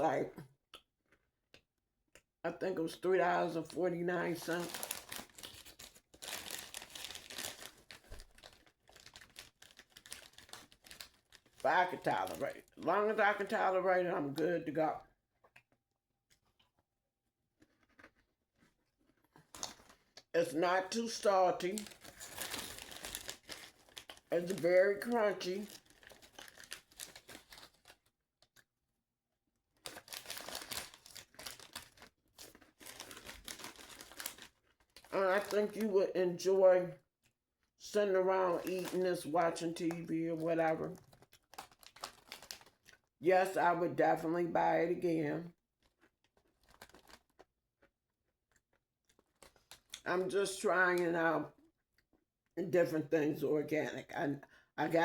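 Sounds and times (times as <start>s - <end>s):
plastic snack bag crinkling: 2.9s - 14.8s, 17.6s - 28.7s, 29.7s - 36.5s, 37.8s - 45.0s, 45.8s - 47.9s, 48.5s - 51.0s
crunching cheese puffs: 4.4s - 12.7s, 17.5s - 20.3s, 21.6s - 28.7s, 29.7s - 35.8s, 40.9s - 43.1s, 45.8s - 47.9s, 48.5s - 50.0s.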